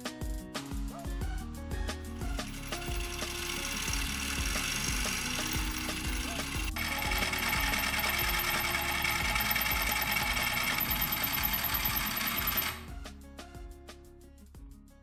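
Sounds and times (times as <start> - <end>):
scroll saw whining: 2.4 - 12.9.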